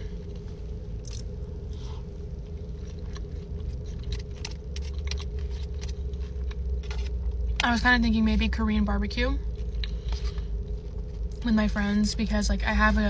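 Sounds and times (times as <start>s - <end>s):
steady low hum: 0.0s - 13.0s
chewing with mouth clicks: 0.4s - 7.4s.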